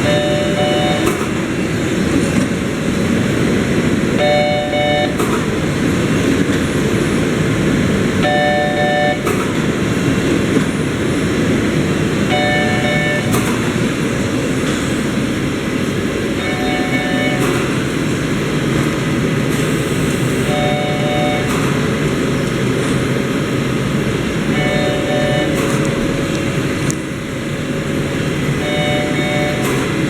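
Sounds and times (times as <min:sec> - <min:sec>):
wrapping machine running: 0:00.0 - 0:30.0
multi-pitch tone: 0:12.3 - 0:13.4, 0:16.3 - 0:17.6, 0:20.5 - 0:21.5, 0:24.4 - 0:29.8
sharp machine click: 0:13.2 - 0:13.8, 0:17.3 - 0:17.9.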